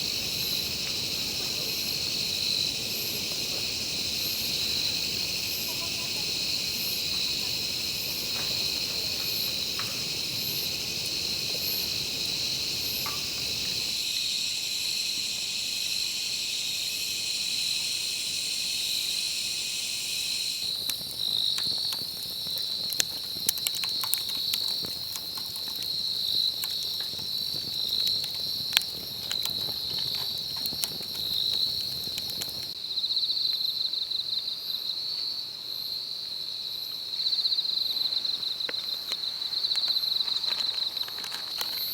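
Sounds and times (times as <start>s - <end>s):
sharp crackles: 0.0s - 14.0s, 20.6s - 32.8s, 38.7s - 41.9s
night insects chirring: 0.0s - 41.9s.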